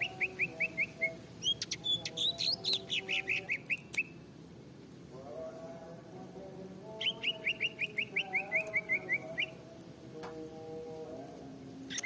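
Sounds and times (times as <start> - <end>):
small birds chirping: 0.0 - 4.2, 6.9 - 9.6.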